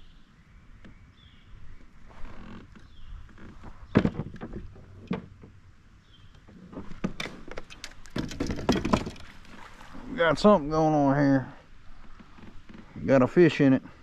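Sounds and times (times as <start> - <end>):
knocks of kayak hull and gear: 2.5 - 5.6, 6.3 - 9.7.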